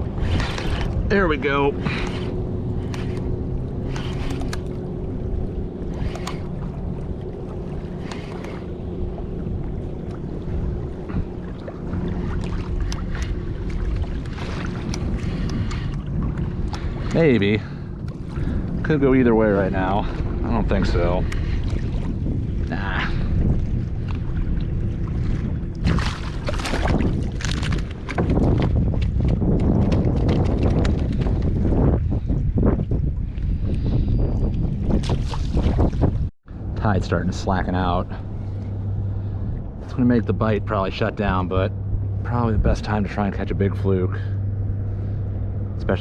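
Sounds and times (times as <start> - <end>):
water splashing against kayak hull: 0.0 - 31.9
low hum: 0.0 - 46.0
wind on microphone: 0.0 - 46.0.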